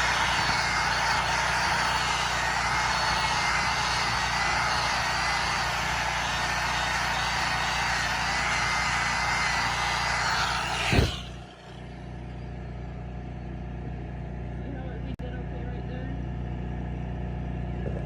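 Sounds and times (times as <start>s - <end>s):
welding arc crackling: 0.0s - 12.1s
steady hum: 0.0s - 13.7s.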